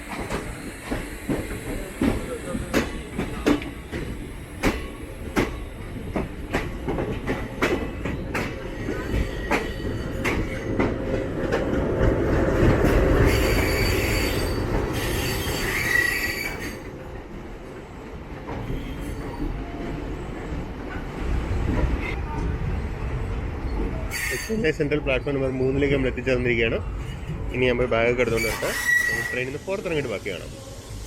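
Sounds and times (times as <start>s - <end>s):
train wheels clacking over rails: 0.0s - 17.0s
low rumble of train: 0.0s - 31.0s
brakes hissing and squealing: 28.2s - 31.0s.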